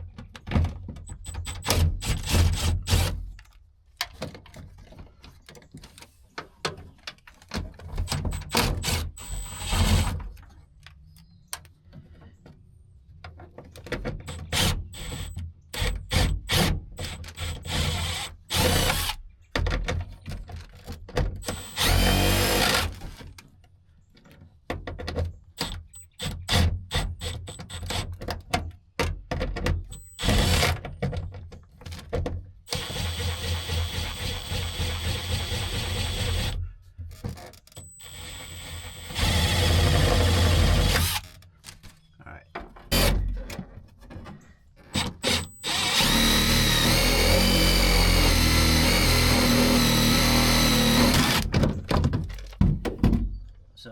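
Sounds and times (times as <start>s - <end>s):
cordless power driver spinning: 45.2s - 51.5s.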